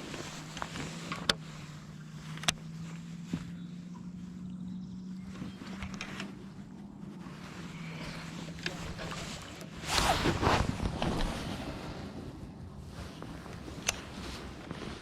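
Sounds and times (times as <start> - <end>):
boat motor humming: 0.0 - 10.0.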